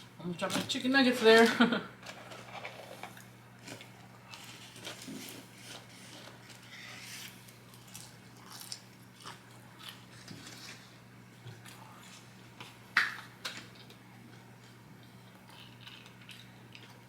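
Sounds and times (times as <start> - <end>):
food crunching: 2.4 - 11.0, 11.6 - 17.0
chewing food: 7.7 - 12.8, 13.6 - 17.0.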